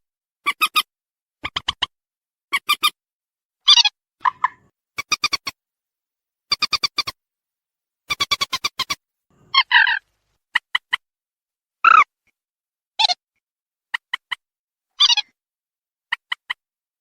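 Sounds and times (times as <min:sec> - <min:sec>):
bird squawks: 0:03.7 - 0:05.6, 0:06.5 - 0:07.2, 0:08.1 - 0:11.0, 0:15.0 - 0:15.3
rail bird clicking calls: 0:03.7 - 0:05.6, 0:06.5 - 0:07.2, 0:08.1 - 0:11.0.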